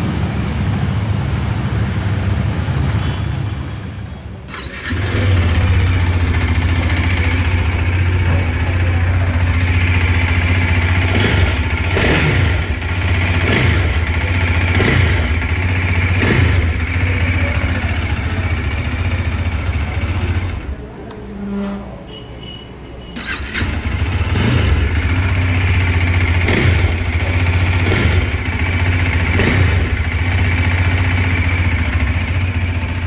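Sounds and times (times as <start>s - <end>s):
motorcycle engine idling: 4.5s - 20.9s, 23.2s - 33.0s
motorcycle throttle blips: 4.5s - 33.0s.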